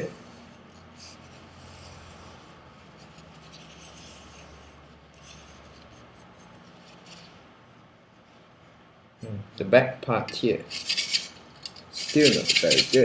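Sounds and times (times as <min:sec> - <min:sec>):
knife scraping during sharpening: 0:10.7 - 0:13.0.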